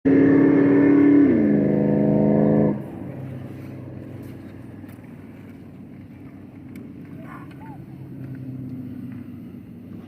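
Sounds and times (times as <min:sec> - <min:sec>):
motorcycle engine at high revs: 0:00.1 - 0:04.1.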